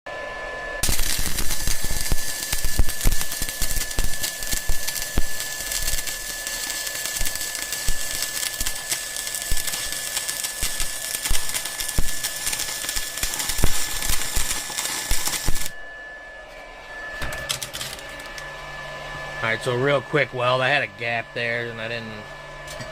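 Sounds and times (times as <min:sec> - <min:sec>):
steady high tone: 0:00.1 - 0:22.4
welding clicks: 0:00.8 - 0:15.7, 0:17.4 - 0:18.4
welding arc crackling hiss: 0:00.8 - 0:15.8, 0:17.2 - 0:18.4.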